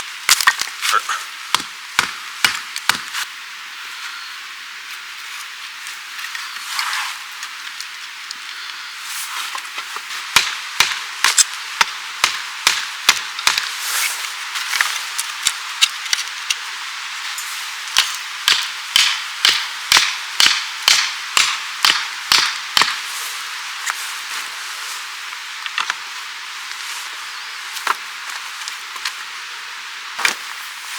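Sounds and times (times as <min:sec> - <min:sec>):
steady high hiss: 0:00.0 - 0:30.9
hand tool striking: 0:18.0 - 0:23.1.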